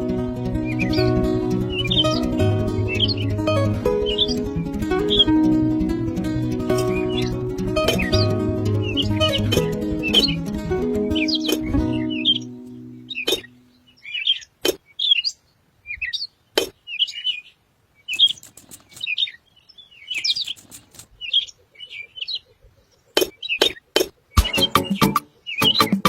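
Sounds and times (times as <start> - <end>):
small birds chirping: 0.0 - 26.0
sharp clicks: 13.2 - 13.5, 18.1 - 19.2, 20.2 - 21.2.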